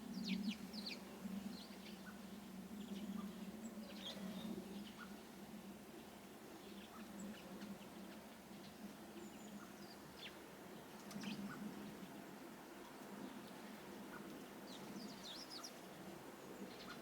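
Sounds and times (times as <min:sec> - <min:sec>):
small birds chirping: 0:06.6 - 0:17.0.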